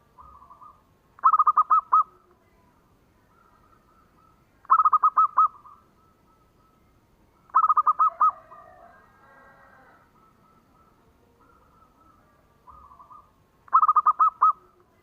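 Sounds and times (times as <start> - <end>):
dove cooing: 0.0 - 2.3, 3.2 - 15.0
faint bird calls: 0.0 - 15.0.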